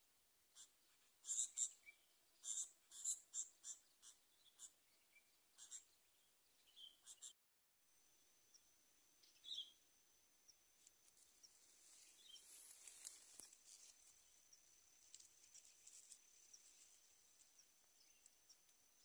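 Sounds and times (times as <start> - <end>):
faint ticks: 17.3 - 18.9.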